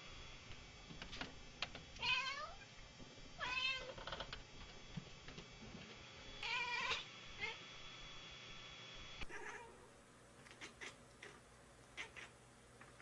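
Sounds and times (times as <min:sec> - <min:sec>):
cat meowing: 0:02.0 - 0:02.6, 0:03.4 - 0:03.9, 0:06.4 - 0:07.6, 0:09.2 - 0:09.8, 0:12.0 - 0:12.3.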